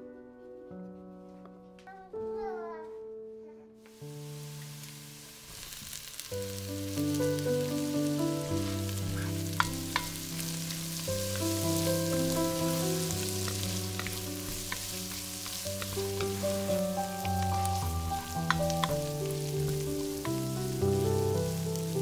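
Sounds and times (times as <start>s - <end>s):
background music: 0.0s - 22.0s
vegetables sizzling in a pot: 3.9s - 22.0s
wooden spoon stirring: 8.6s - 22.0s.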